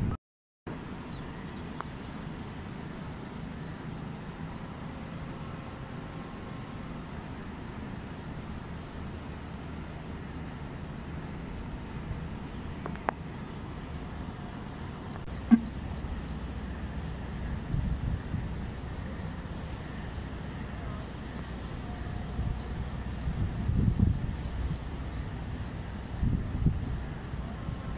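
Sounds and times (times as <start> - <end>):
distant train rumble: 0.7 - 27.9
short high chirps: 15.4 - 15.8.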